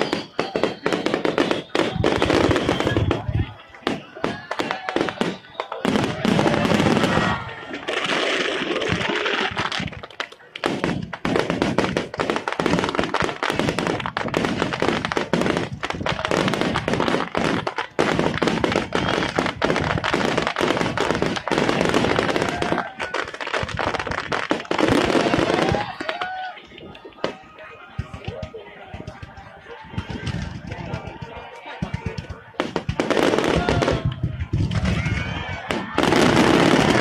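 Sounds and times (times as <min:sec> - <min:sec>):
fireworks bursting: 0:00.0 - 0:37.0
fireworks crackling: 0:00.0 - 0:37.0.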